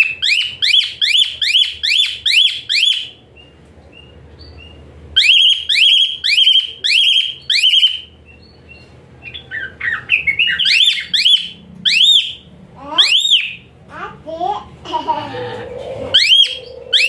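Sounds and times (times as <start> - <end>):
starling singing shrill rising notes: 15.7 - 17.0.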